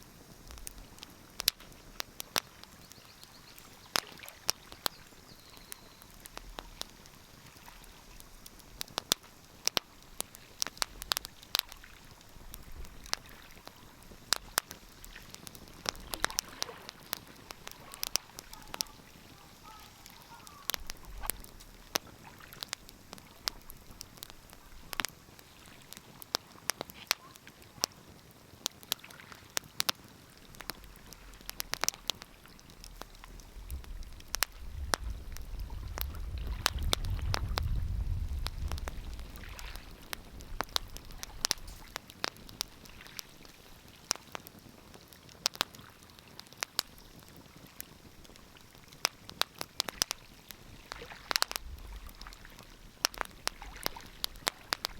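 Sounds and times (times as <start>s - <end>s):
fire pops and snaps: 0.0s - 54.9s
wood fire crackling: 0.0s - 54.9s
low rumble: 33.4s - 39.3s.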